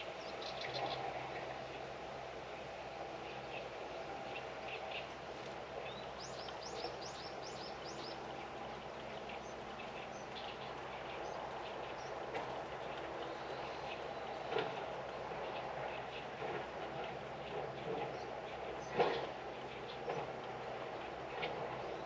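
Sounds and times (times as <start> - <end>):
low mechanical hum: 0.0 - 22.0
small birds calling: 3.2 - 16.7.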